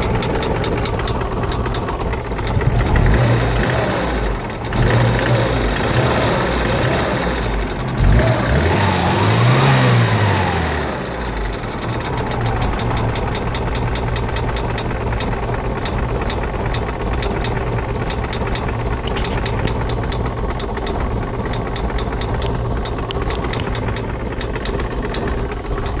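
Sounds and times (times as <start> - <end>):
engine revving and idling: 0.0 - 26.0.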